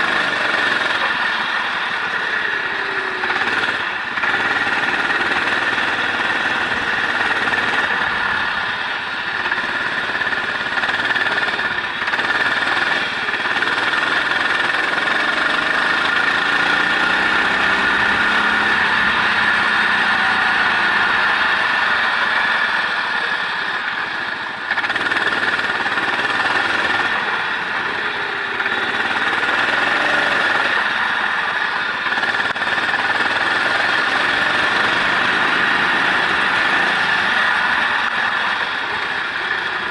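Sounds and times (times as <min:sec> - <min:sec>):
racing engine revving: 0:00.0 - 0:39.9
wind and road noise: 0:00.0 - 0:39.9.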